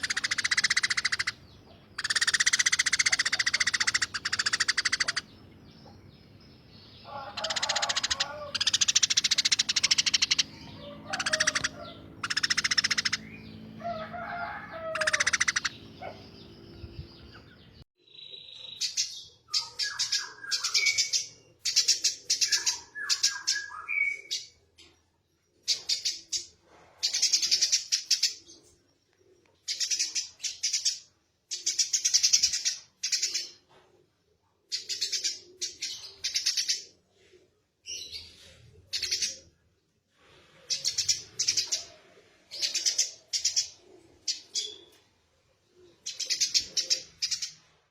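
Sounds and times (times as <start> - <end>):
sparrow chirping: 0.0 - 13.8, 14.9 - 17.8, 45.8 - 47.6.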